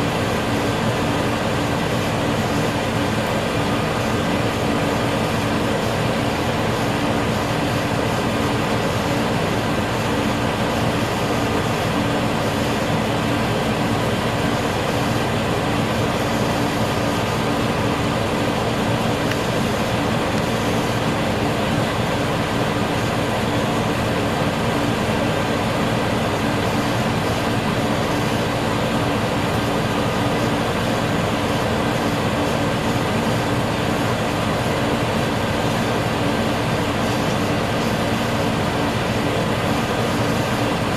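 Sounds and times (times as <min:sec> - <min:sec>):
diesel railcar idling: 0:00.0 - 0:40.9.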